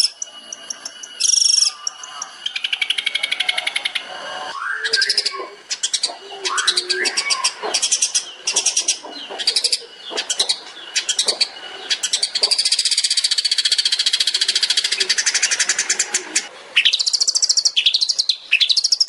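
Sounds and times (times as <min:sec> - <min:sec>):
lower sliding whistles: 0:00.0 - 0:09.0
bird singing rapid sharp notes: 0:00.0 - 0:19.0
rapid bird trill: 0:00.0 - 0:19.0.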